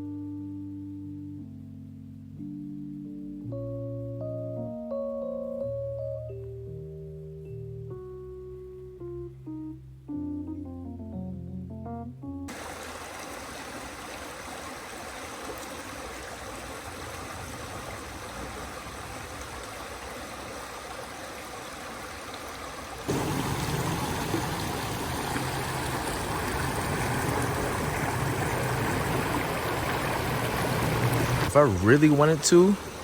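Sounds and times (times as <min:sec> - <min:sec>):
stream water rushing: 0:12.5 - 0:33.0.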